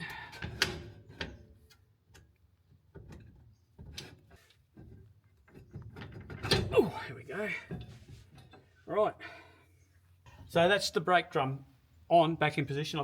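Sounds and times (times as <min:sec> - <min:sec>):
metal clicks and light knocks: 0:00.3 - 0:06.6.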